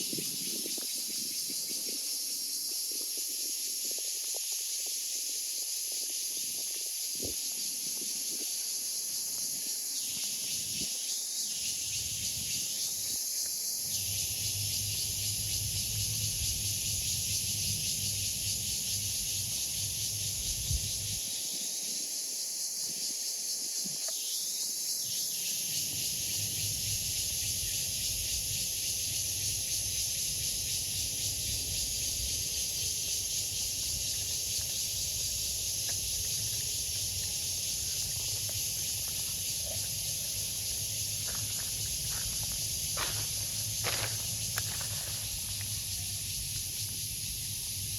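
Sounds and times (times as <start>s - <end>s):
cicada buzzing: 5.4s - 22.9s, 23.7s - 47.9s.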